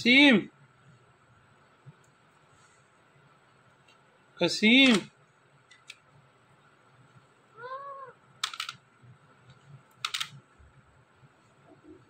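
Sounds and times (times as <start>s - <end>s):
parrot meow-like call: 7.6s - 8.2s.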